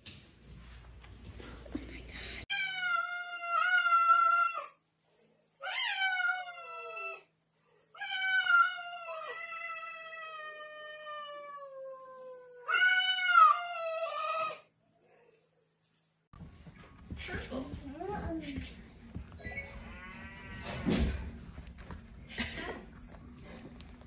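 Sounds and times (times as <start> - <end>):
cat yowling: 2.5 - 4.8, 5.6 - 7.2, 8.0 - 14.6.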